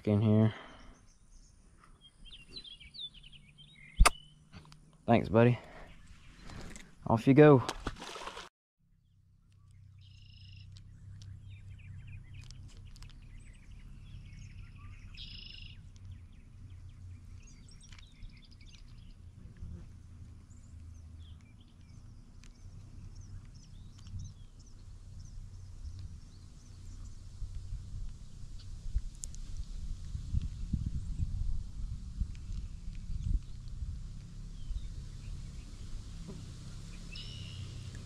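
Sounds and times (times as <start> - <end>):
steady low rumble: 9.0 - 36.2
birds chirping and calling: 9.6 - 19.2, 36.9 - 38.0.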